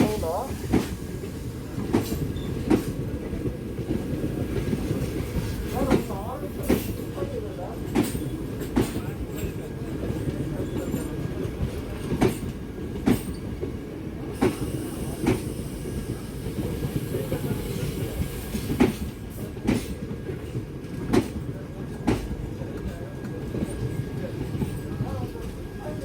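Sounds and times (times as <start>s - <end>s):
train rumbling on track: 0.0s - 26.0s.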